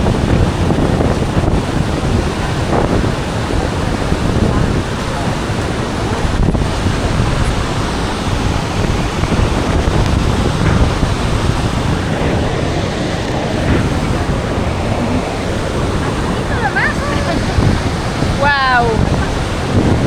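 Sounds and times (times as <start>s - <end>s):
waterfall roar: 0.0s - 20.0s
wind on microphone: 0.0s - 20.0s.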